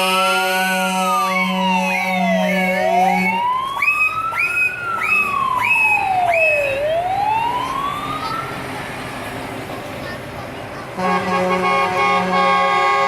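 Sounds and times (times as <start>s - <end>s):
siren wailing: 0.0s - 8.7s
siren yelping: 0.7s - 8.7s.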